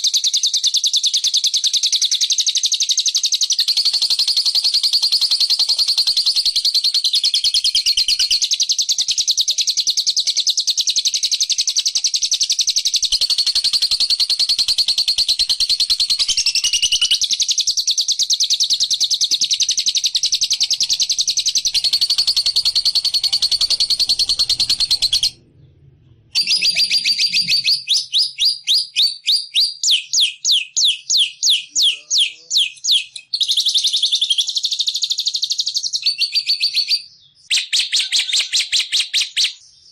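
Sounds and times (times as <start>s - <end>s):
high-pitched bird trill: 2.9s - 25.4s, 26.4s - 34.9s.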